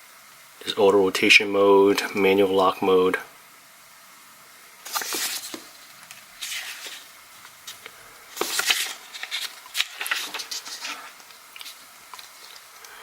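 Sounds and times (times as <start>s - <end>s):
paper pages rustling: 4.8s - 13.0s.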